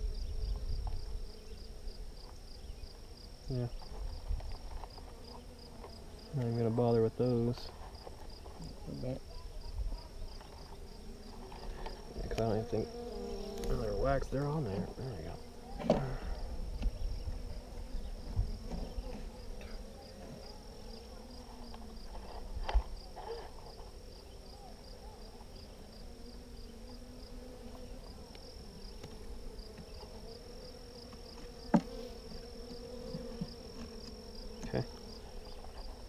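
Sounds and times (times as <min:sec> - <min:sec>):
honeybees buzzing: 0:00.0 - 0:36.0.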